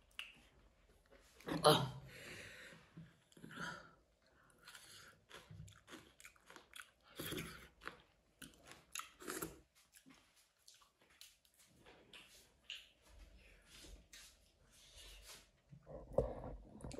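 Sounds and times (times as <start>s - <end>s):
wet mouth clicks and smacks: 0.1s - 0.5s, 12.1s - 13.0s
person chewing food: 4.2s - 13.5s.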